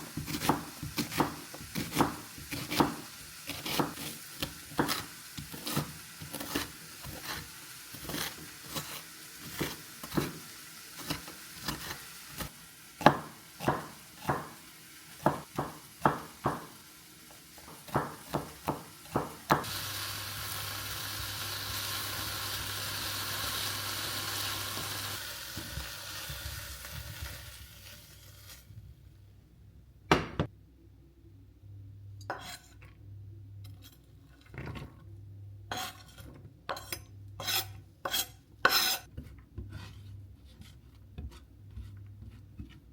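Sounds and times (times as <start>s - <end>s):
sizzling hiss: 0.0s - 28.8s.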